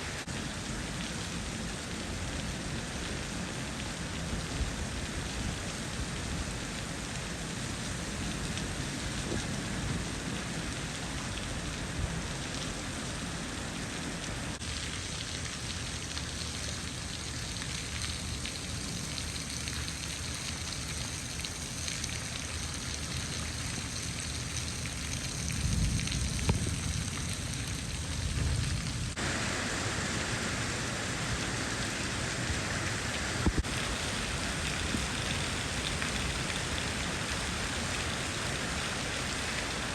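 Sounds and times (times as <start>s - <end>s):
heavy rain pouring: 0.0s - 39.9s
low rumble: 25.5s - 33.6s.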